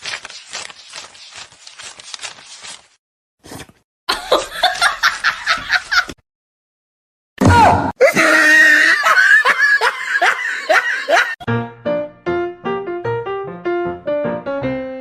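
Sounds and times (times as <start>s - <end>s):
person laughing: 4.1s - 6.2s, 8.0s - 11.4s.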